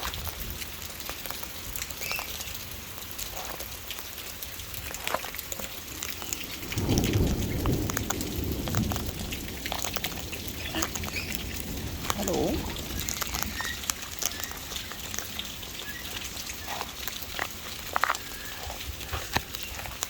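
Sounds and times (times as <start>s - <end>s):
drips tapping: 0.0s - 20.0s
rain falling: 0.0s - 20.0s
thunder rumble: 5.8s - 16.5s.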